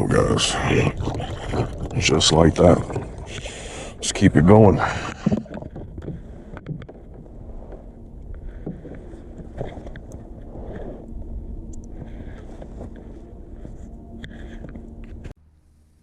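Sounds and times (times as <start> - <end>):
low rumbling noise: 0.0 - 15.8
faint steady hum: 0.0 - 16.0
fishing gear clicking and knocking: 0.8 - 10.8.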